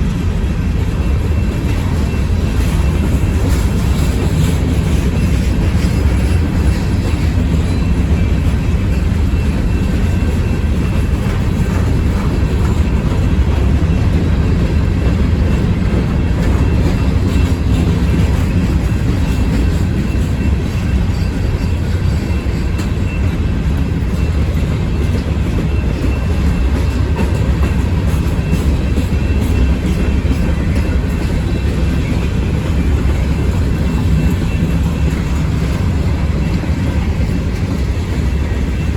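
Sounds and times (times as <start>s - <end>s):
freight train cars rumbling past: 0.0s - 38.9s.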